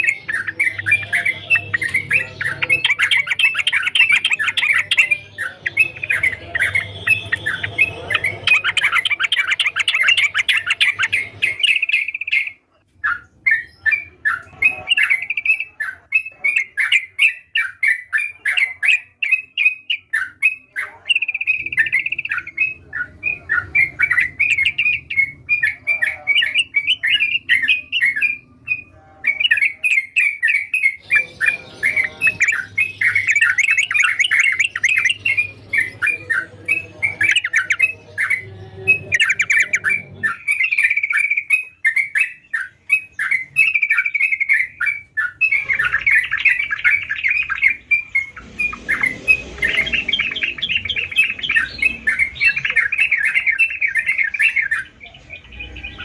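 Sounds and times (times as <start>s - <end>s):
bird singing chattering notes: 0.0s - 56.0s.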